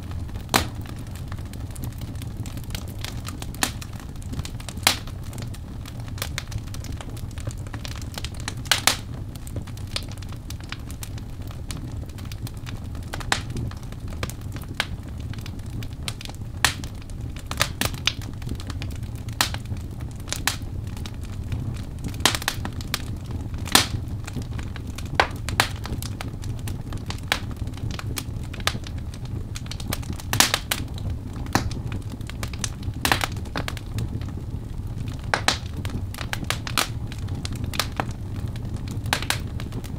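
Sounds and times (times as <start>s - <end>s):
fire crackling pops and snaps: 0.0s - 39.9s
low rumble of flames: 0.0s - 39.9s.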